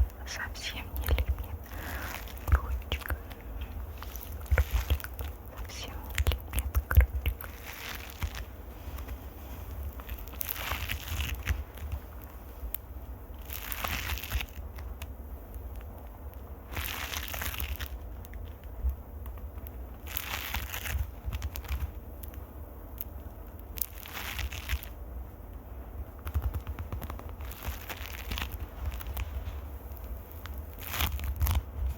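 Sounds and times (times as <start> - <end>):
low rumble of mic handling: 0.0 - 0.3, 24.4 - 31.9
fingers scratching on microphone: 0.0 - 12.8, 26.2 - 31.9.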